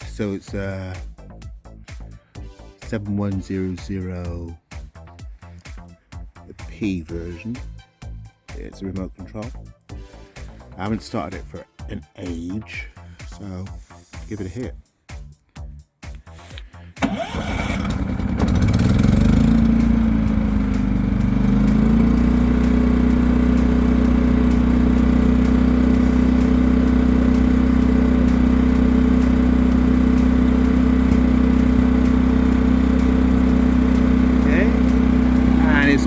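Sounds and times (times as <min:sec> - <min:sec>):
generator engine starting and running: 0:16.4 - 0:36.0.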